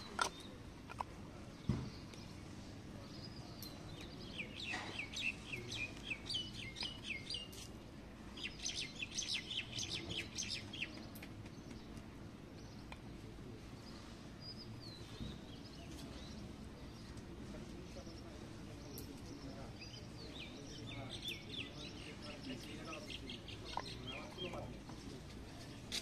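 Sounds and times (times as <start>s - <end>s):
faint outdoor background: 0.0s - 26.0s.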